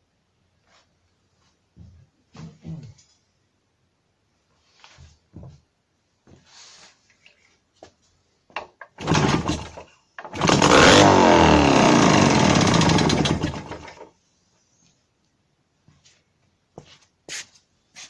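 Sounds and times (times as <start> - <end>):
motorcycle engine kick-started: 9.0 - 14.1.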